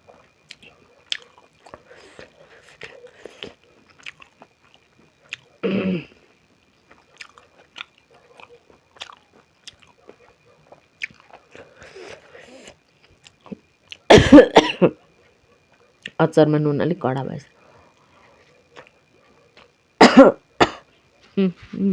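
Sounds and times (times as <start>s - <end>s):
mouth chewing wet smacks: 0.4s - 5.5s, 6.9s - 14.1s
loud cough: 14.1s - 14.9s, 20.0s - 20.8s.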